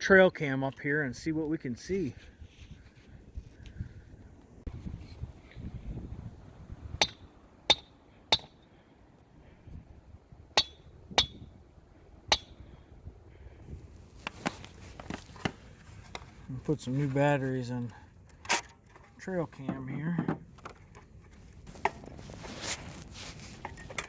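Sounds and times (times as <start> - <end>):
hammer striking stakes: 7.0 - 8.6, 10.6 - 11.5, 12.3 - 12.6.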